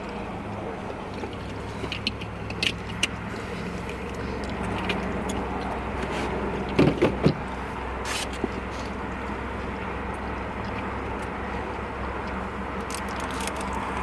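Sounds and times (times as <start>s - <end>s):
chewing and lip-smacking: 0.0s - 6.8s, 8.3s - 14.0s.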